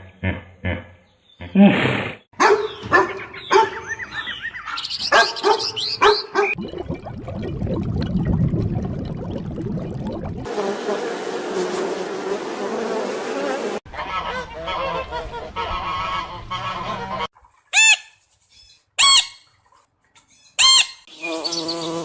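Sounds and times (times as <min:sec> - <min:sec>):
dog barking: 0:02.4 - 0:06.6
flying insects buzzing: 0:10.5 - 0:13.8, 0:21.1 - 0:22.0.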